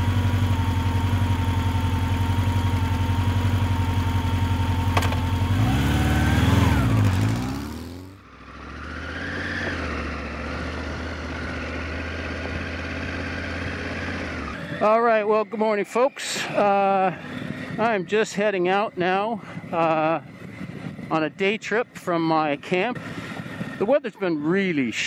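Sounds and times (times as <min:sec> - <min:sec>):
motorcycle engine idling: 0:00.0 - 0:09.0, 0:09.7 - 0:25.0
motorcycle engine revving: 0:00.0 - 0:18.2, 0:22.6 - 0:24.0.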